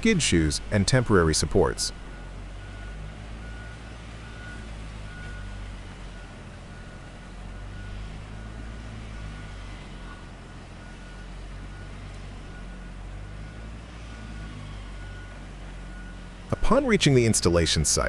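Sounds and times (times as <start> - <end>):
heavy machine engine running: 0.0 - 18.0
backup alarm beeping: 10.4 - 17.0.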